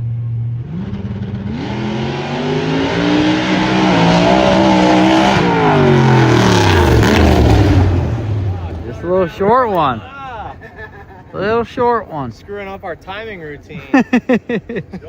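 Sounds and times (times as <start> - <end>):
race car engine accelerating: 0.2 - 9.1.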